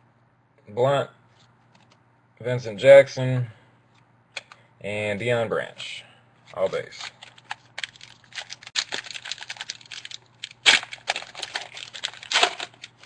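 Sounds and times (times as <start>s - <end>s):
cards clicking and rustling: 6.5s - 13.0s.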